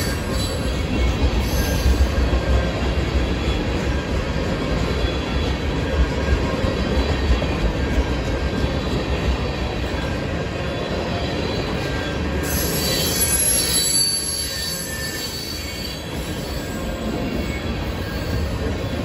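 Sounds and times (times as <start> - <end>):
train wheels rumbling on track: 0.0 - 19.0
high-pitched wheel squeal: 12.4 - 18.6.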